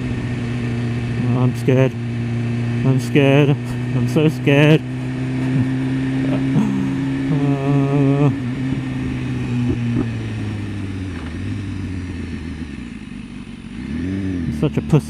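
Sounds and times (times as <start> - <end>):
motorcycle engine running: 0.0 - 15.0
short wavering vocal sound: 5.5 - 8.4.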